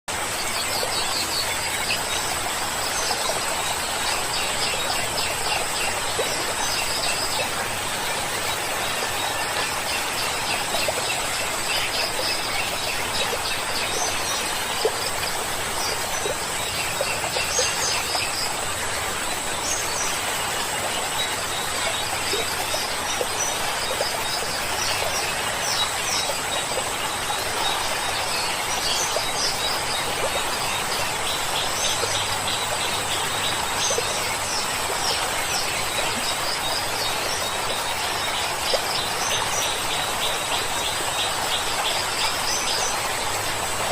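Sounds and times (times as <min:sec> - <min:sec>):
stream flowing: 0:00.1 - 0:43.9.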